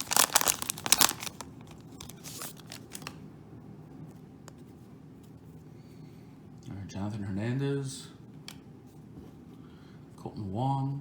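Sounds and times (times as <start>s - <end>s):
cards rustling: 0.0s - 3.2s.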